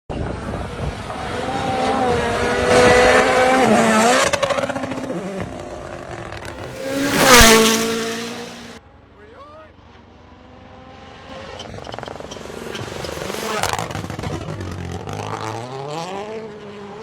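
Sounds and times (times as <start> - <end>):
rally car engine revving: 0.2 - 8.8, 10.8 - 17.0
car passing close: 1.0 - 8.8.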